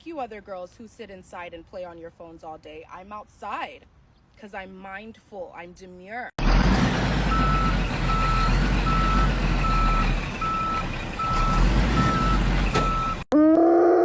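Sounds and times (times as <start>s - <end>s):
reversing alarm beeping: 7.3s - 13.3s.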